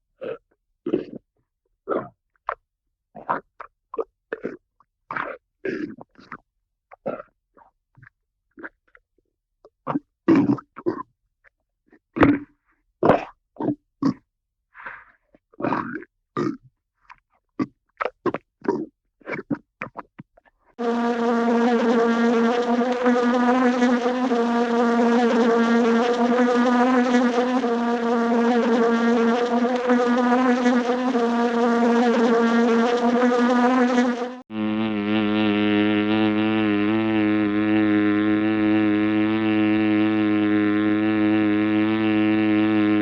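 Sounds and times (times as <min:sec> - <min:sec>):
low droning buzz: 0:20.8 - 0:43.0
wavering insect buzz: 0:20.8 - 0:43.0.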